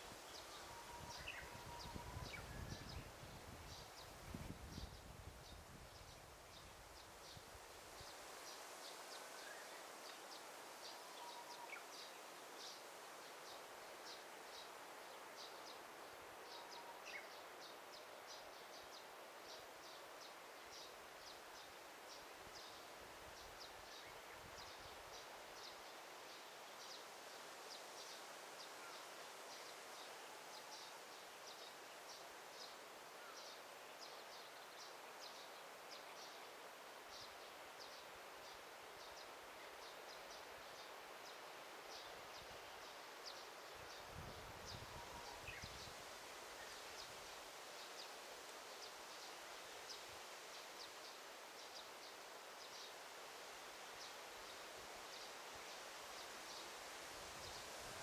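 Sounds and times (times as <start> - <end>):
soft steady hiss: 0.0 - 58.0
faint whistled bird notes: 0.5 - 3.0.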